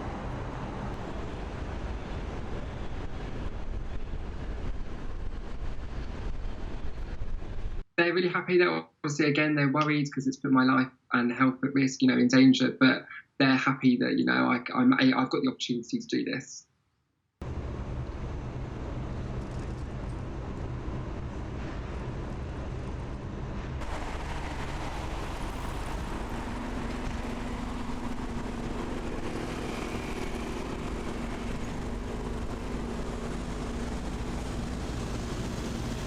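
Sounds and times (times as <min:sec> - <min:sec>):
vehicle engine: 0:00.0 - 0:07.8, 0:17.4 - 0:36.0
steady low hum: 0:17.4 - 0:36.0.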